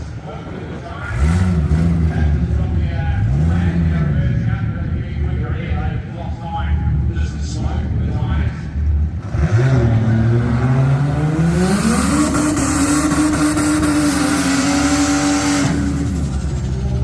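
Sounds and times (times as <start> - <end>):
car engine revving: 1.0 - 5.4, 8.9 - 17.0.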